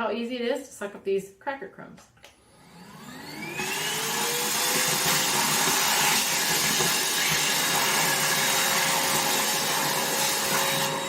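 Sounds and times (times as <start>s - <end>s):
vacuum motor whine: 2.4s - 11.0s
vacuum sucking up crumbs: 2.6s - 11.0s.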